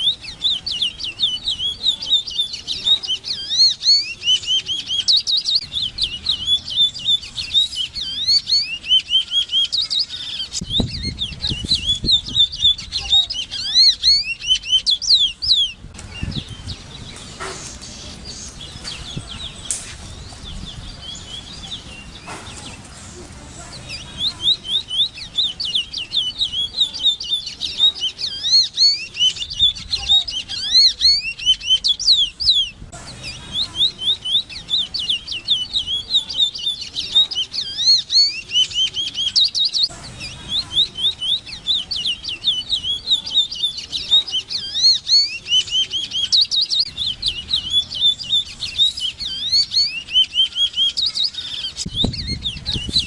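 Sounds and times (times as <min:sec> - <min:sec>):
finch singing warbling song: 0:00.0 - 0:53.0.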